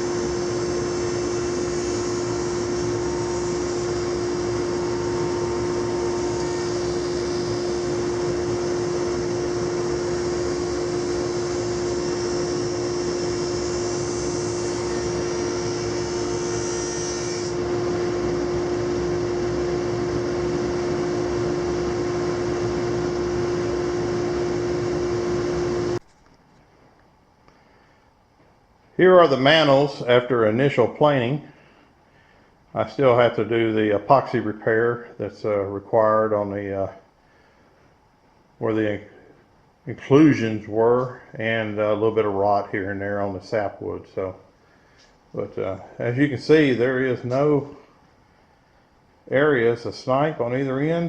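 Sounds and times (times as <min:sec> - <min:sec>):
high hiss of planing wood: 0:00.0 - 0:19.1
planer humming: 0:00.0 - 0:26.1.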